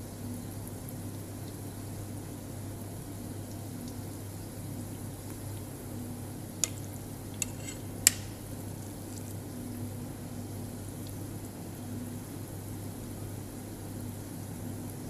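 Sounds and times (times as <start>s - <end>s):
patties sizzling in oil: 0.0s - 15.0s
spatula clicking against pan: 6.6s - 6.8s, 7.4s - 8.4s.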